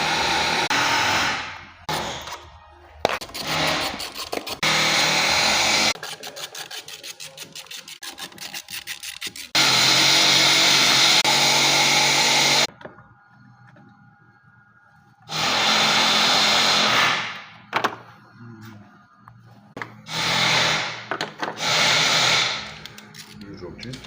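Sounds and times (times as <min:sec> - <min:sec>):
power tool running: 0:00.0 - 0:01.4, 0:04.6 - 0:06.0, 0:09.5 - 0:12.7, 0:15.3 - 0:17.3, 0:20.1 - 0:21.0, 0:21.6 - 0:22.7.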